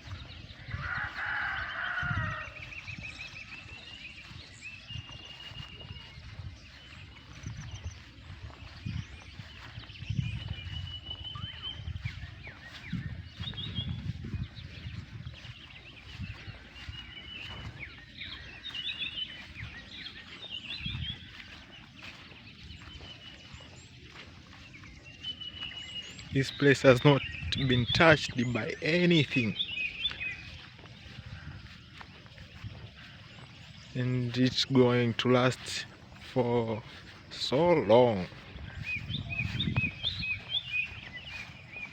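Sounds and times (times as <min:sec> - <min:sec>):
small birds chirping and trilling: 0:00.0 - 0:41.9
soft low thumps: 0:38.4 - 0:41.9.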